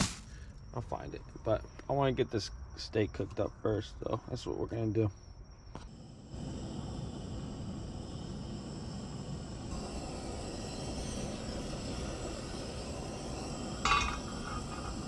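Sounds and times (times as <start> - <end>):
propane burner rushing: 0.0 - 0.4, 5.9 - 15.0.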